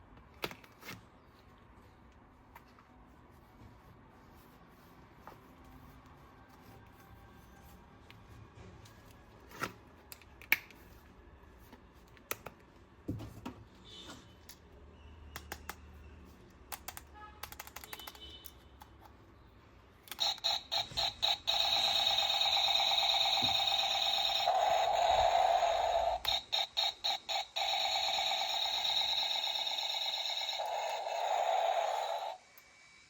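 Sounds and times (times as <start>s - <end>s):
plastic toy parts clicking: 16.7s - 19.1s
electronic toy buzzing: 20.1s - 32.8s.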